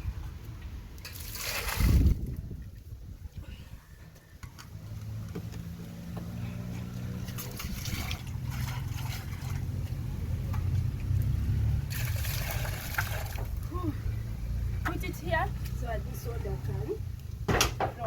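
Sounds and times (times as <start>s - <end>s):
water pouring and splashing: 0.9s - 2.9s, 7.0s - 13.8s
low steady rumble: 1.9s - 17.5s.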